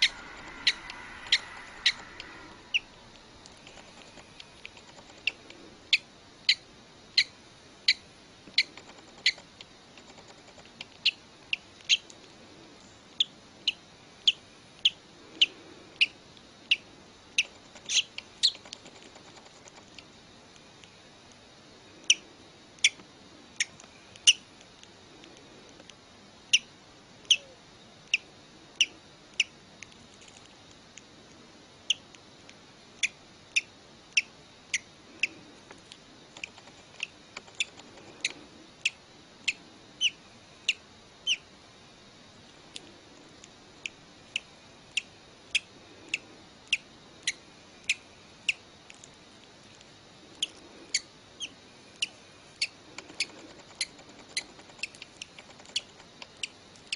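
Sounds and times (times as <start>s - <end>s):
baby bird peeping: 0.0s - 12.1s, 13.2s - 19.8s, 22.0s - 22.2s, 22.8s - 24.5s, 26.5s - 29.6s, 31.9s - 32.1s, 33.0s - 35.5s, 36.3s - 41.5s, 44.3s - 48.6s, 50.3s - 56.9s.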